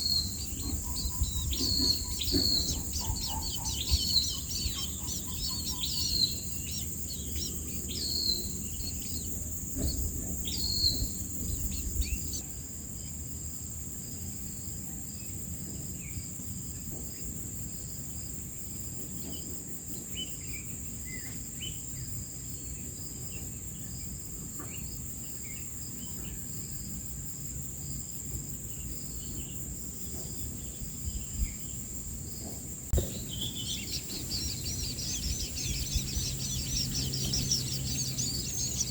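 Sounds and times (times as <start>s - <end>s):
small birds chirping: 0.0s - 12.4s, 28.7s - 38.9s
high insect drone: 0.0s - 15.4s, 20.2s - 38.9s
soft thump: 32.4s - 34.6s.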